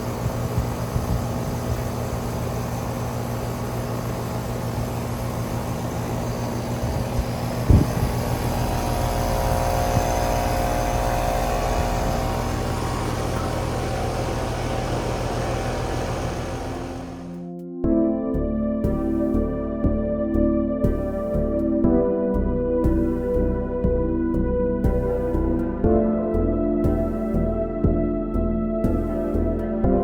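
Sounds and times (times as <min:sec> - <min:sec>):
air conditioner hum: 0:00.0 - 0:17.4
air conditioner clunk: 0:04.8 - 0:17.3.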